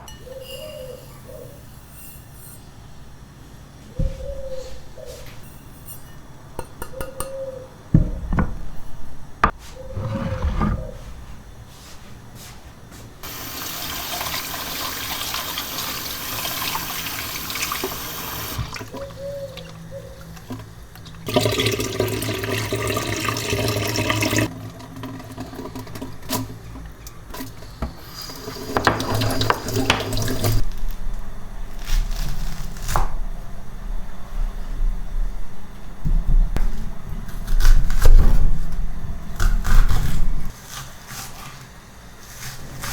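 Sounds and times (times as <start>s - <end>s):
kitchen tap running: 13.2s - 19.8s, 21.0s - 26.6s, 27.3s - 30.6s.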